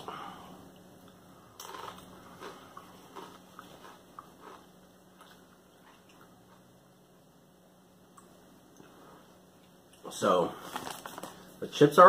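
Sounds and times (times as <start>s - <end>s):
corn chip crunching: 1.5s - 6.2s, 10.0s - 11.5s.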